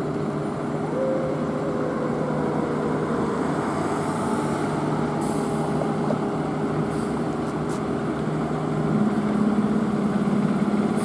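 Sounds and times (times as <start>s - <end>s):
fire engine motor running: 0.0s - 11.0s.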